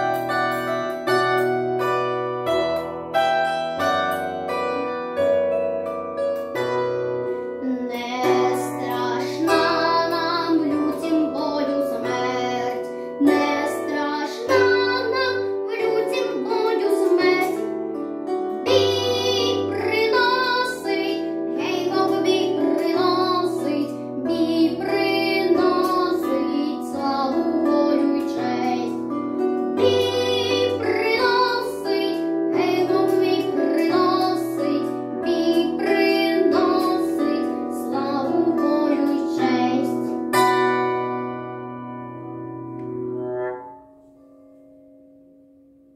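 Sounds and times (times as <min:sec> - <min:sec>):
plucked strings and bass backing: 0:00.0 - 0:45.2
boy singing: 0:07.6 - 0:17.7, 0:18.6 - 0:29.0, 0:29.8 - 0:40.2.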